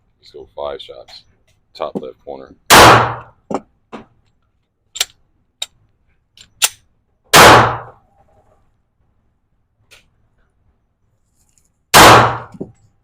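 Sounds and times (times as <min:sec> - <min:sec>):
loud pistol shot: 0:02.7 - 0:03.3, 0:07.3 - 0:08.0, 0:11.9 - 0:12.5.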